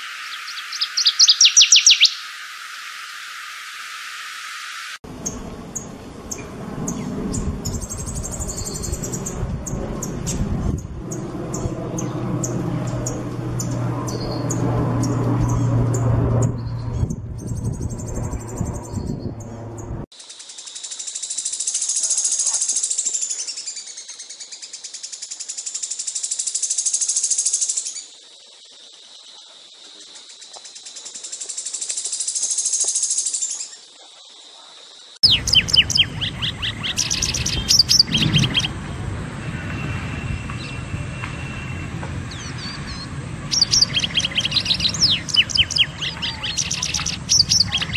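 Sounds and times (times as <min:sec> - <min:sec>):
bird high fast trill: 0:00.0 - 0:02.4, 0:05.2 - 0:10.4, 0:35.2 - 0:38.8, 0:42.3 - 0:47.9
birds chirping: 0:00.0 - 0:03.3, 0:05.1 - 0:47.9.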